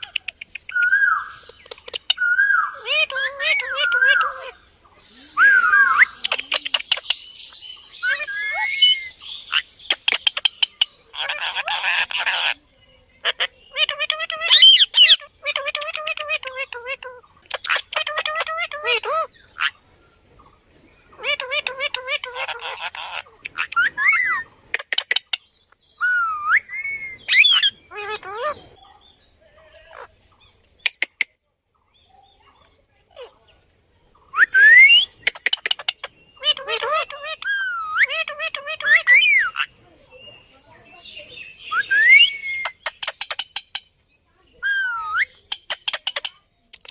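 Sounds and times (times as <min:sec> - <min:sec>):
parrot clicking and chirping: 0:00.0 - 0:04.4, 0:06.1 - 0:07.2, 0:13.9 - 0:19.1, 0:21.2 - 0:25.4, 0:30.6 - 0:31.4, 0:34.8 - 0:39.7, 0:42.5 - 0:43.9, 0:44.7 - 0:46.9
parrot chattering calls: 0:00.0 - 0:04.6, 0:05.4 - 0:12.6, 0:13.2 - 0:19.8, 0:21.2 - 0:28.8, 0:34.4 - 0:39.8, 0:41.6 - 0:43.9, 0:44.6 - 0:46.9
parrot whistled screech: 0:41.7 - 0:42.7.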